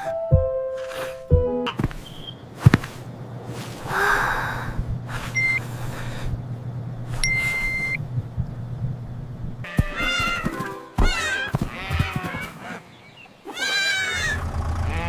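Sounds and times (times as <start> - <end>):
low steady hum: 1.2 - 9.9
high electronic beeps: 7.2 - 8.0.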